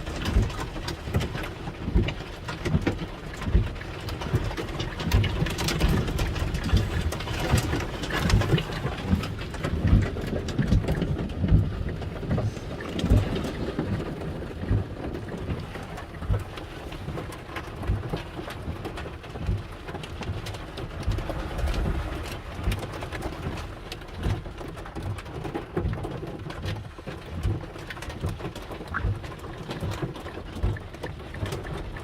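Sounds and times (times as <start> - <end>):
heavy rain falling: 0.0 - 32.0
low thumps: 20.7 - 24.4.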